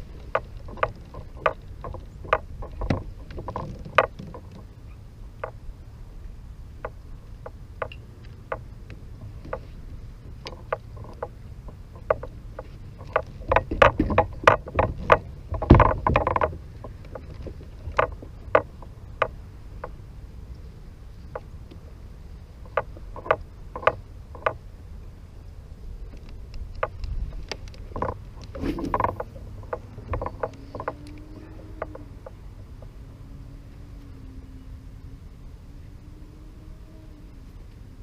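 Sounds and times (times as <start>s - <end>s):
wind rumble on microphone: 0.0s - 38.0s
knocks against kayak hull: 12.0s - 18.7s.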